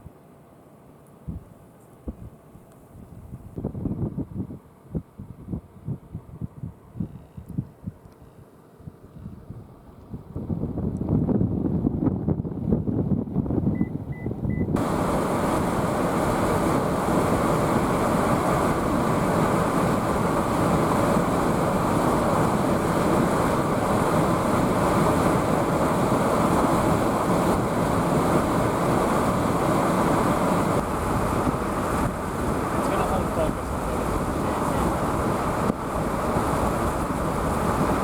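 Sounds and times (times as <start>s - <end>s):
wind buffeting microphone: 3.0s - 8.1s, 8.8s - 38.0s
muffled low rumble: 9.2s - 38.0s.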